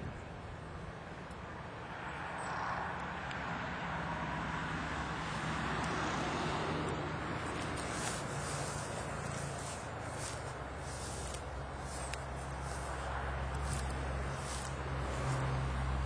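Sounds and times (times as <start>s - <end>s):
honey bees buzzing: 5.2s - 16.0s.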